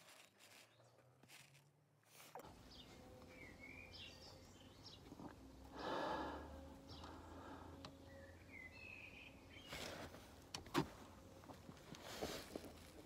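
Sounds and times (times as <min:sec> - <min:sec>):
low steady hum: 0:00.0 - 0:13.0
bird chirps: 0:02.7 - 0:05.1, 0:08.0 - 0:09.8
breathy exhale: 0:05.7 - 0:07.8.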